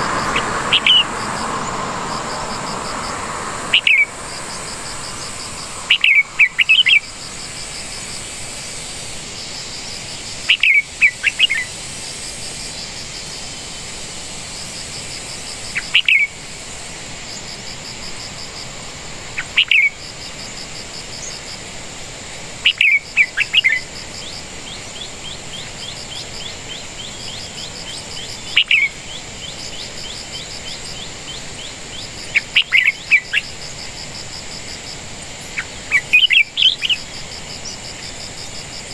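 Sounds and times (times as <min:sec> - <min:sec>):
bird chirping: 0:00.0 - 0:08.6
insects trilling: 0:00.0 - 0:13.5, 0:14.5 - 0:38.9.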